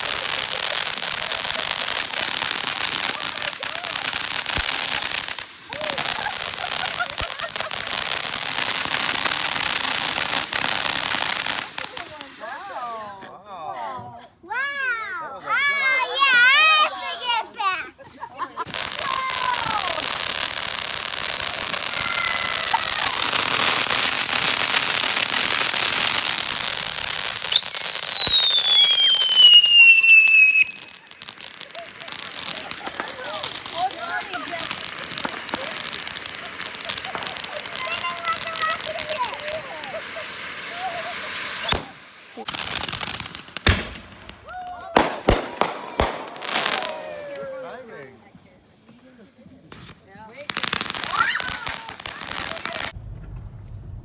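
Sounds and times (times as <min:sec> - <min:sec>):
fireworks crackling: 0:00.0 - 0:13.3, 0:18.6 - 0:48.4, 0:49.7 - 0:54.0
firework shrill whistle: 0:21.4 - 0:31.9, 0:36.8 - 0:42.0.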